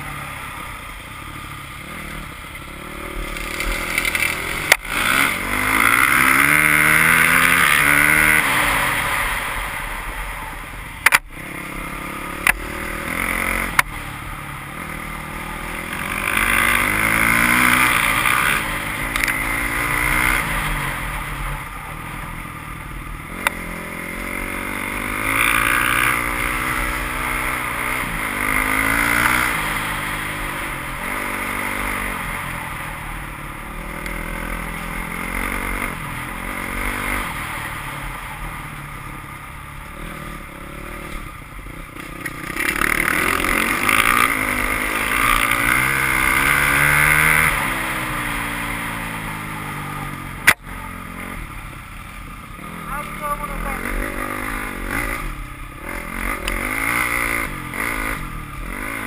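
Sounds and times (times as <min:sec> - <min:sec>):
dirt bike engine revving: 0:00.0 - 0:59.0
sharp click: 0:11.0 - 0:11.3.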